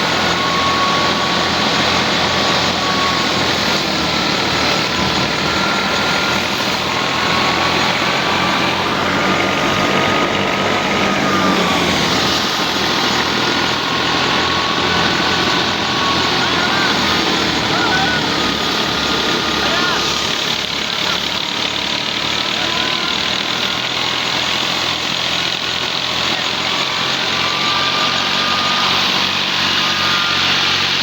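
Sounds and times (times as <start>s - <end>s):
tractor engine running under load: 0.0s - 31.0s.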